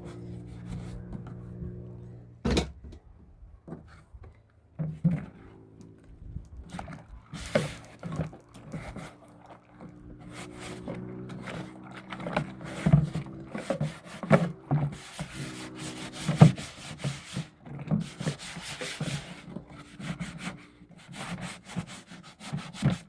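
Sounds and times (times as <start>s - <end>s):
steady low hum: 0.0s - 21.0s
thump: 2.4s - 3.0s
scrapes: 6.7s - 23.0s.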